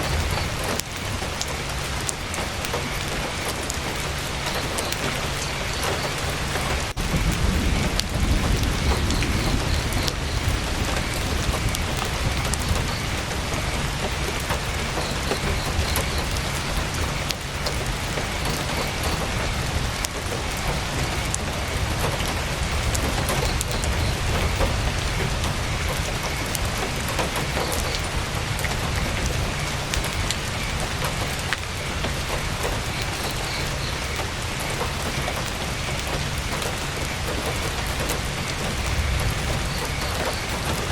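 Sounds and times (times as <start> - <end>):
heavy rain on tent fabric: 0.0 - 40.9
deep low rumble: 7.0 - 13.8.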